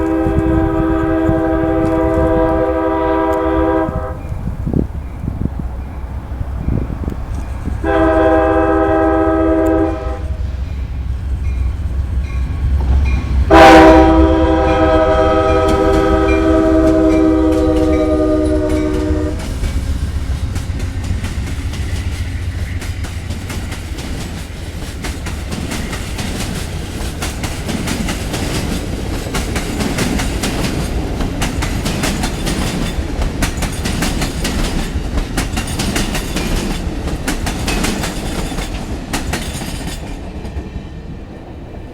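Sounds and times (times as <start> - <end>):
train horn blasts: 0.0 - 4.4, 7.8 - 19.8
train rumbling: 0.0 - 41.9
wheels clicking over rail joints: 18.9 - 41.4.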